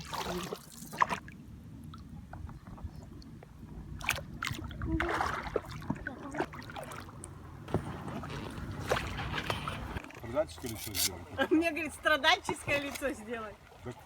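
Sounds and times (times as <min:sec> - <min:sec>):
paddle water splashes: 0:00.0 - 0:14.0
knocks against boat: 0:07.7 - 0:10.0.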